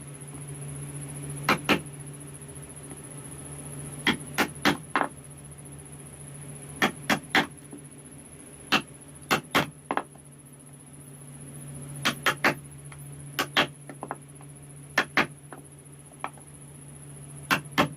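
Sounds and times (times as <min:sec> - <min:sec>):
steady low hum: 0:00.0 - 0:17.9
chisel knocking into wood: 0:12.0 - 0:12.6, 0:13.4 - 0:14.2, 0:15.0 - 0:15.3, 0:17.5 - 0:17.9.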